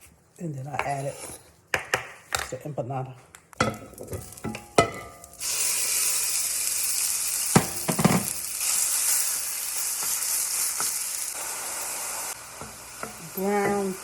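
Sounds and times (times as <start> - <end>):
chicken sizzling in a pan: 4.2 - 14.0.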